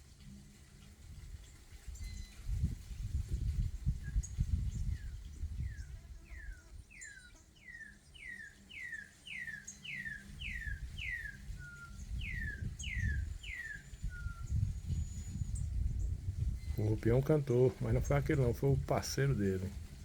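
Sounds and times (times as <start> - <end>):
bird singing whistled notes: 1.8 - 2.8, 4.0 - 18.1.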